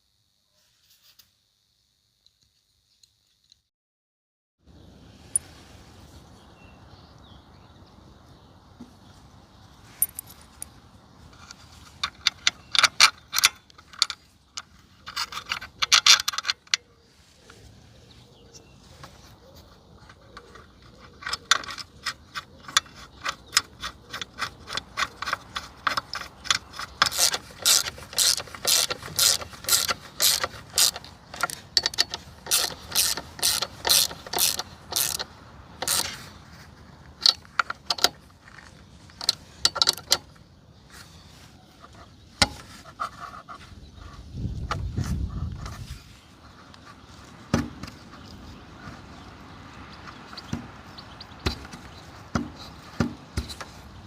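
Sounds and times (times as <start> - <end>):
metallic clicks of small tools: 20.1 - 36.2.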